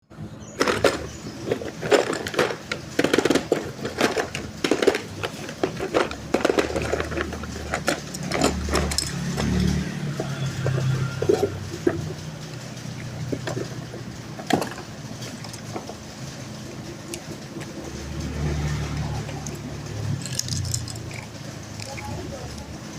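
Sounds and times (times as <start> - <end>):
plastic toy parts clicking: 0.6 - 9.6, 19.3 - 22.8.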